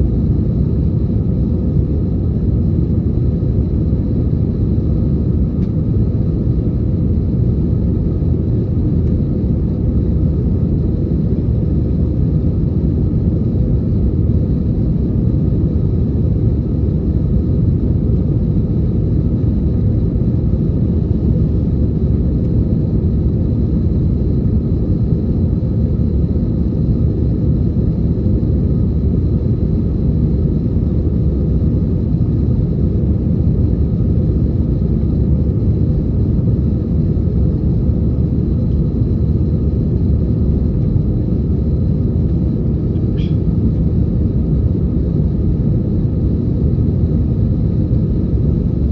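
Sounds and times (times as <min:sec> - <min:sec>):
airplane cabin engine rumble: 0:00.0 - 0:48.9
faint high whine: 0:41.8 - 0:43.9.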